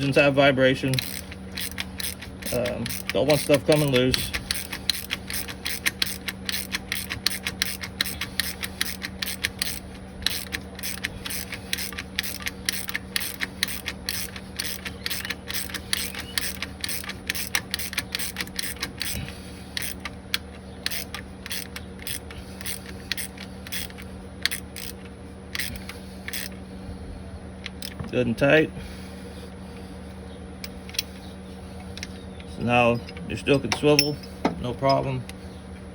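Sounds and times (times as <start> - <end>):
ratcheting wrench clicking: 0.8 - 26.6, 27.6 - 28.0.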